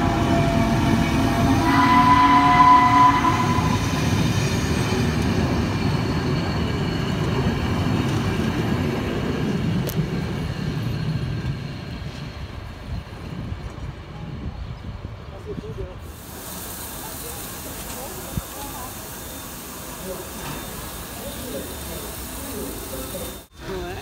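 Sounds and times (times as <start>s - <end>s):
train whistle chord: 0.0s - 3.9s
train coaches rumbling on rails: 0.0s - 24.0s.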